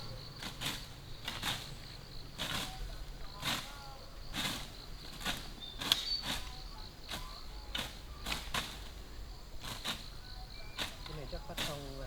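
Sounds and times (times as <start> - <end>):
high insect chirring: 0.0 - 12.0
brush knives slashing grass: 0.4 - 8.9, 9.6 - 10.1, 10.8 - 12.0.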